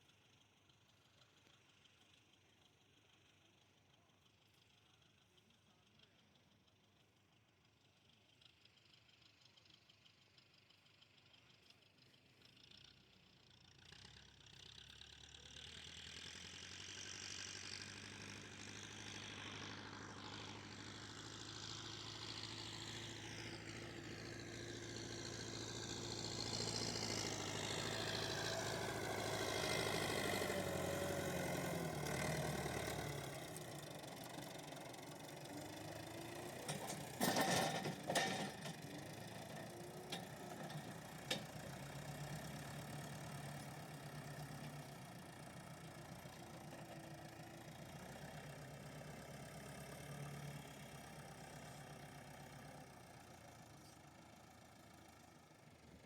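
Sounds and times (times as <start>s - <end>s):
vehicle engine running: 13.8s - 56.0s.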